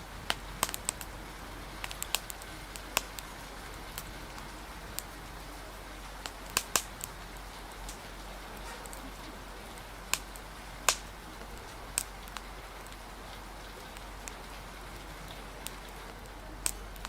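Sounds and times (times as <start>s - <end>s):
rain hissing: 0.0s - 17.0s
wood fire crackling and popping: 0.0s - 17.0s.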